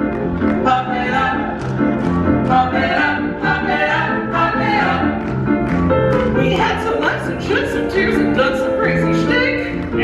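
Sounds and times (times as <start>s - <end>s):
several voices singing together: 2.5s - 5.2s.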